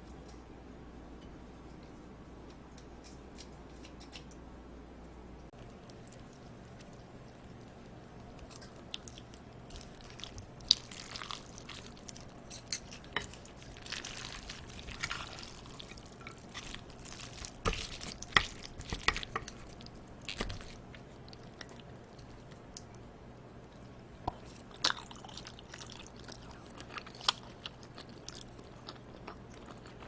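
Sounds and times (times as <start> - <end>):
wet sticky food handling: 5.6 - 22.9.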